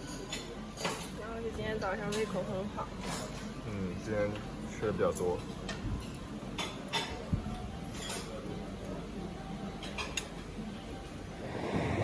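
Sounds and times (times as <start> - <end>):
cutlery clinking against plates: 0.0 - 1.2, 2.0 - 3.6, 4.3 - 8.6, 9.7 - 10.5.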